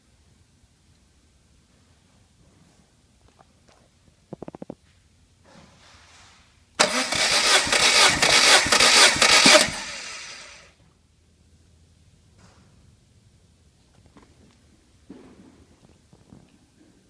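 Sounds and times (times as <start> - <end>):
engine cranking by starter: 6.8 - 10.7.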